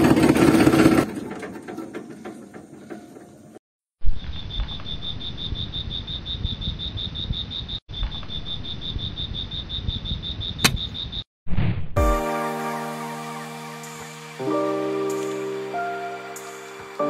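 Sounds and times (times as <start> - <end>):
cricket chirping: 4.1 - 11.3
sharp click: 10.6 - 10.9.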